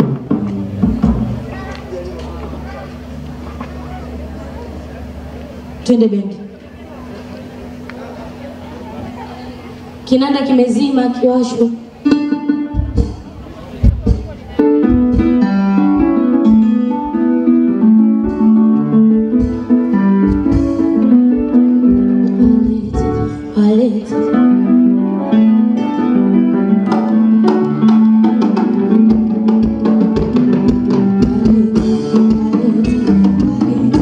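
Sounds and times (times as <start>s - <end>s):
drum hits: 0.0s - 1.7s, 12.1s - 17.2s, 18.2s - 23.4s, 26.9s - 32.5s
keyboard melody: 0.0s - 34.0s.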